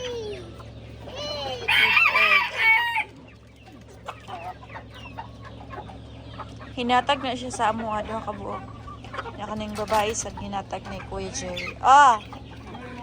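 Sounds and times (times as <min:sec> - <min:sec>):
hens clucking: 0:00.0 - 0:13.0
rooster crowing: 0:01.6 - 0:03.2.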